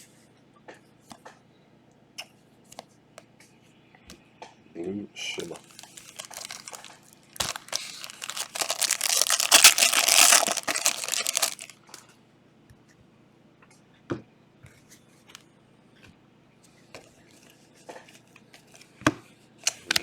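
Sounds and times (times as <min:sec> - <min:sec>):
card pack wrapper tearing: 0:05.4 - 0:12.0.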